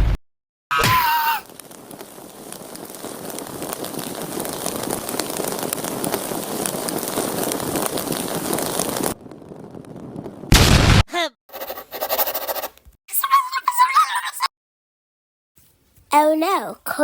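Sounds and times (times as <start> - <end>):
crackling rush of noise: 1.4 - 10.6.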